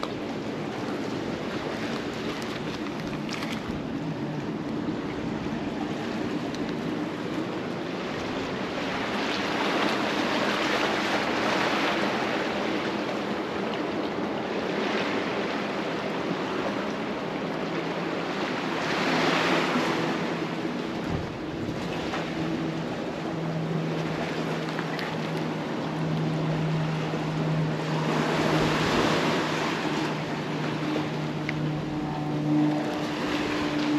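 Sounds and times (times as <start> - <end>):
sea waves washing against breakwater: 0.0 - 33.9
steady low hum: 20.1 - 33.9.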